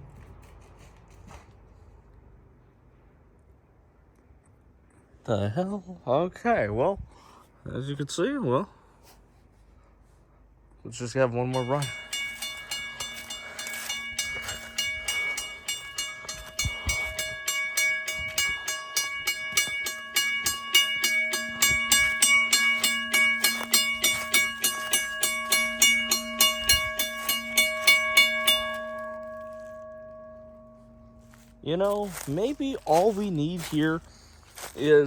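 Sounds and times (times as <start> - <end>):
railroad crossing bell ringing: 11.2 - 35.0.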